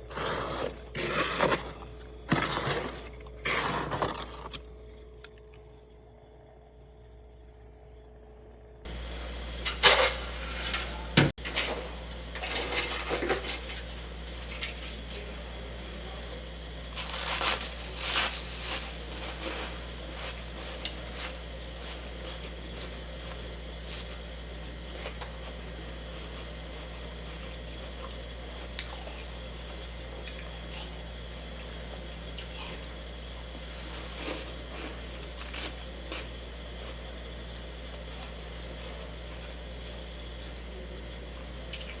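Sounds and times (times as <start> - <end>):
frost crunching and scraping: 0.0 - 5.8, 16.9 - 22.9, 33.6 - 37.1
low hum: 0.0 - 10.2.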